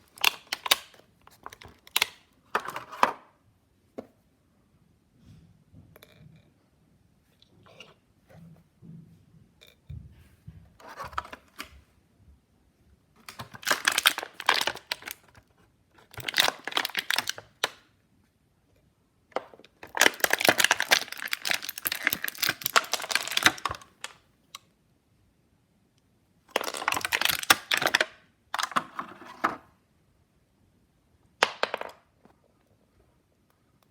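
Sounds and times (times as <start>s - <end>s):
plastic packaging crinkling: 0.0s - 2.7s, 13.2s - 15.4s, 16.0s - 17.8s, 19.7s - 24.2s, 26.5s - 29.0s.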